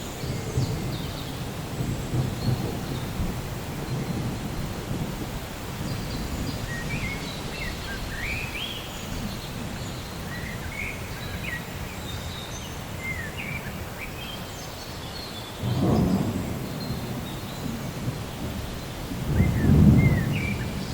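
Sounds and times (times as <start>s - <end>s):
thunder rumbling: 0.0s - 10.4s, 15.6s - 20.9s
loud thunderclap: 0.2s - 7.2s, 15.6s - 20.9s
birds chirping: 5.5s - 20.9s.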